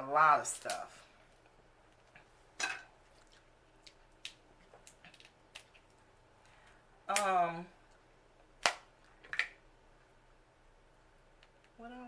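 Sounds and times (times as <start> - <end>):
wet squish of food: 3.0 - 6.0.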